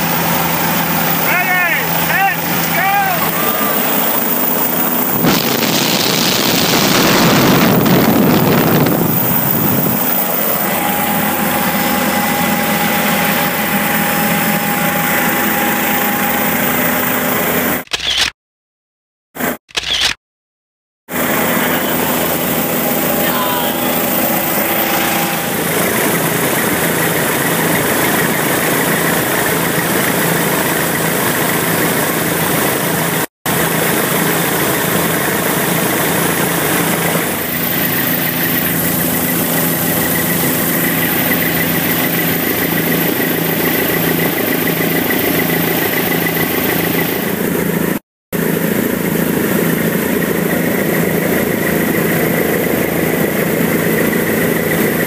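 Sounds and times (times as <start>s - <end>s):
high whine: 0.0s - 17.8s, 21.1s - 29.4s
helicopter engine and rotor noise: 0.0s - 18.3s, 19.4s - 20.1s, 21.1s - 55.0s.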